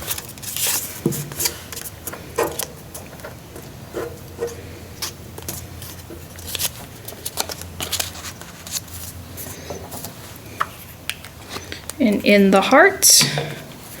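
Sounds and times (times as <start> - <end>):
paper rustling: 0.0 - 3.2, 3.9 - 10.3.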